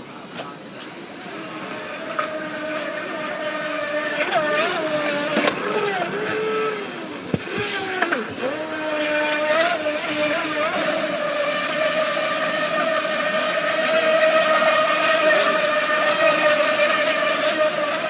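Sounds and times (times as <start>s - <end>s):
rc speedboat motor whining: 0.6s - 18.0s.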